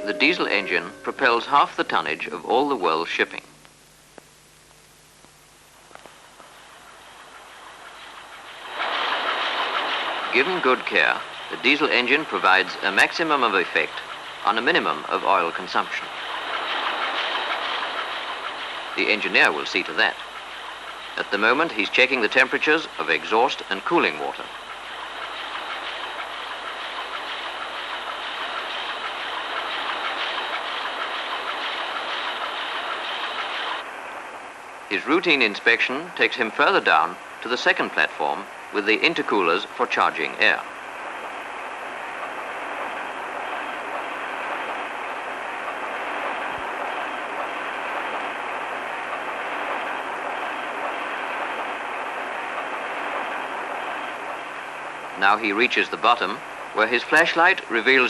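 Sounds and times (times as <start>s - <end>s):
marine diesel engine running: 6.2s - 33.8s.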